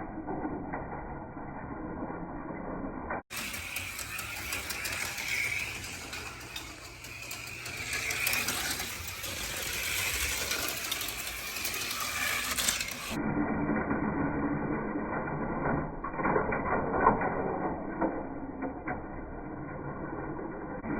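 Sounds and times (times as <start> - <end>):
cars clicking and rattling on track: 3.3 - 13.2
slot car motors whining: 3.3 - 13.2.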